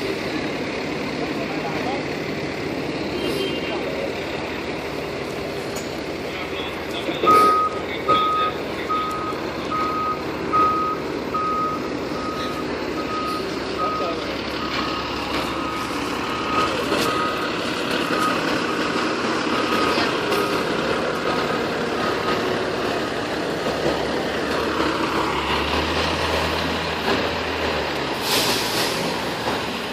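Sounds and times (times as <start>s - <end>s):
truck engine idling: 0.0s - 29.9s
back-up alarm beeping: 6.6s - 19.0s.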